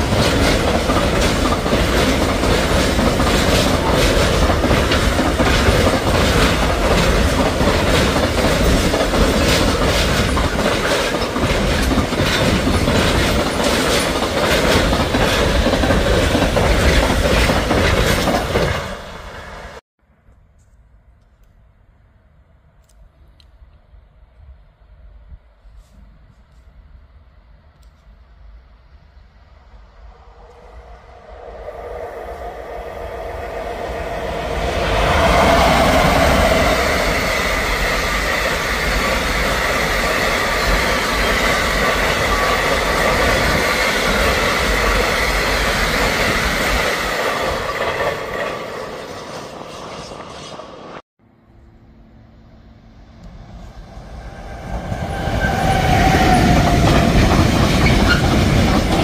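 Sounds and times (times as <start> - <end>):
freight train wheels clattering on rail: 0.0 - 19.8, 34.3 - 51.0, 54.5 - 59.0.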